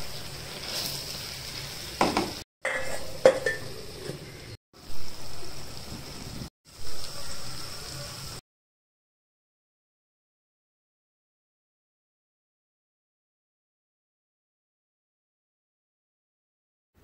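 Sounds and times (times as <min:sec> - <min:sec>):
vegetables sizzling in a pot: 0:00.0 - 0:08.4.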